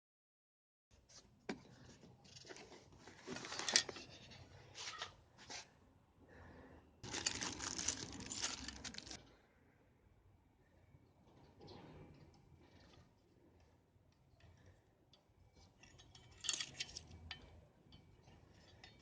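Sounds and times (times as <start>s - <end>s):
rustling crinkling and tearing: 7.0s - 9.2s.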